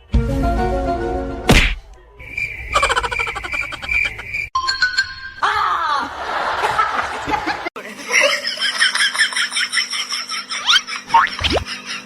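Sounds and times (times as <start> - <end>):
music: 0.0 - 1.5
people laughing: 2.8 - 4.3, 5.8 - 12.0.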